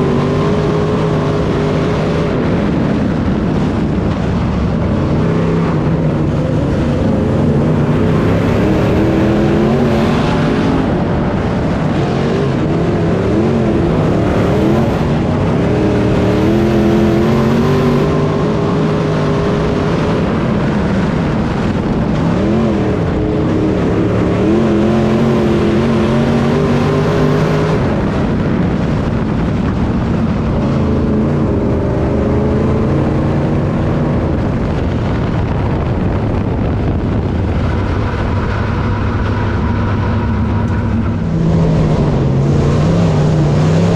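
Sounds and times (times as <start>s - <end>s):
race car engine running hard: 0.0s - 43.9s.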